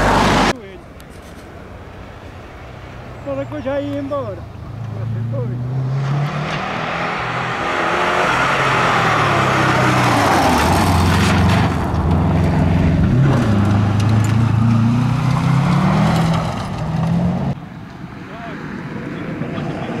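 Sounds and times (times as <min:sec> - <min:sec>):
tyre and road noise: 0:00.0 - 0:20.0
car engine passing by: 0:02.6 - 0:17.6.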